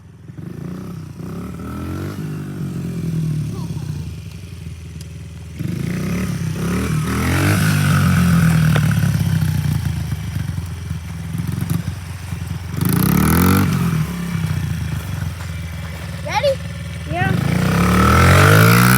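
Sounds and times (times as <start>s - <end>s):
dirt bike engine revving: 0.3s - 4.7s, 5.6s - 18.9s.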